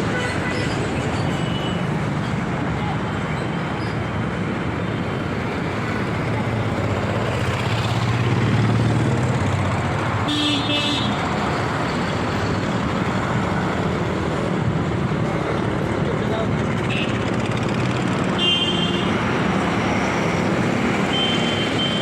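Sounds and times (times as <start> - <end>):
road traffic noise: 0.0 - 22.0
passing vehicle rumble: 5.6 - 10.2.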